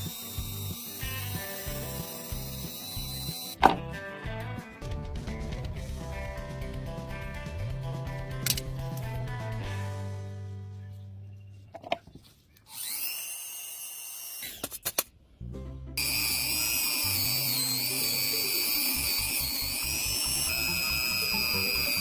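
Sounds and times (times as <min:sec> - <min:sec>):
rotary tool whining: 0:00.0 - 0:03.6, 0:12.6 - 0:15.0, 0:16.0 - 0:22.0.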